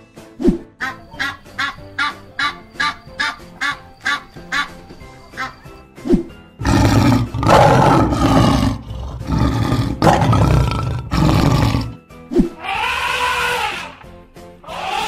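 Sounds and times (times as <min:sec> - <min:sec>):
lion roaring: 0:06.6 - 0:12.0.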